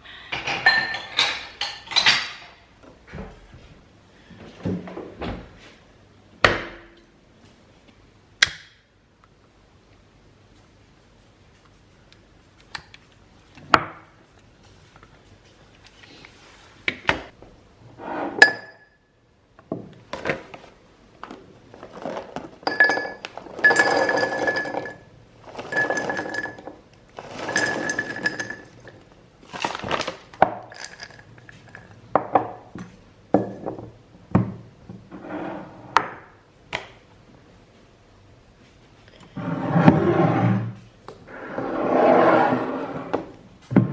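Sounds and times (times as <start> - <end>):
crockery clinking and knocking: 0.4 - 2.6, 22.6 - 29.0
rubbing or scraping: 35.1 - 36.0, 39.3 - 43.3.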